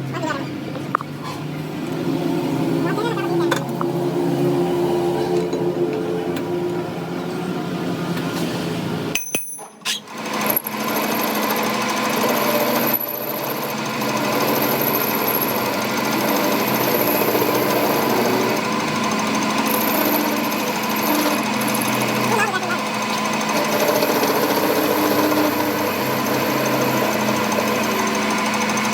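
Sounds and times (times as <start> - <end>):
power tool hammering: 9.1 - 28.9.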